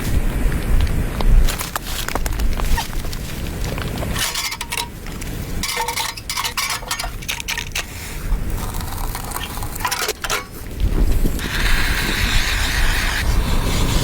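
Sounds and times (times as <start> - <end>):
wind rumble on microphone: 0.0 - 4.3, 7.8 - 14.0
crunching and scraping strokes: 1.3 - 14.0.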